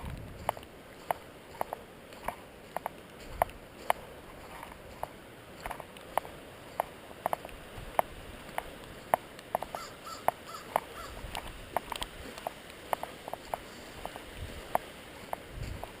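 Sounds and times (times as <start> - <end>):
footsteps squelching in mud: 0.0 - 16.0
bird calling: 9.7 - 11.2.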